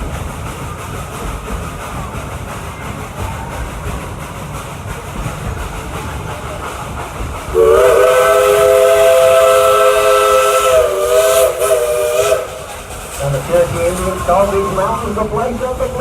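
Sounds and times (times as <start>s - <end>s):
steam train rumbling and clattering: 0.0s - 16.0s
steam whistle blast: 7.5s - 12.7s.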